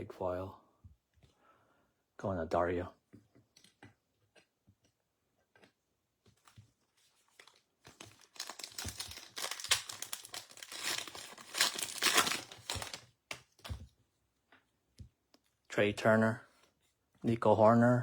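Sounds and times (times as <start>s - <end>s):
wrapper crinkling and tearing: 7.4s - 13.1s
cards clicking: 8.0s - 13.5s.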